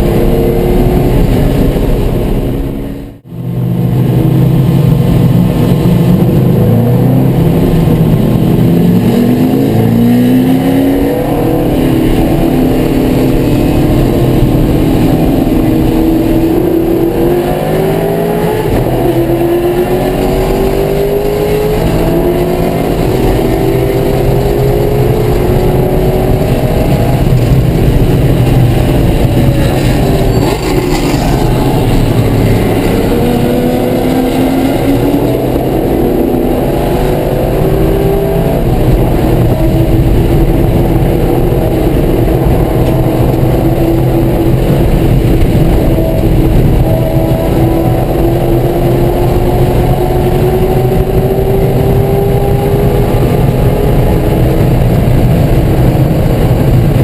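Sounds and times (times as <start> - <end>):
race car engine at speed: 0.0 - 57.0.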